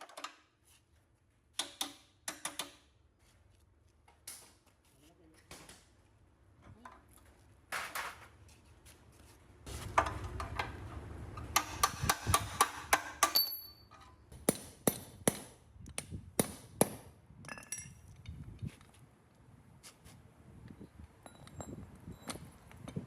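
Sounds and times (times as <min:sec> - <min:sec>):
hammer striking steel: 0:11.5 - 0:15.6, 0:16.4 - 0:17.8
metallic ring: 0:13.2 - 0:14.2.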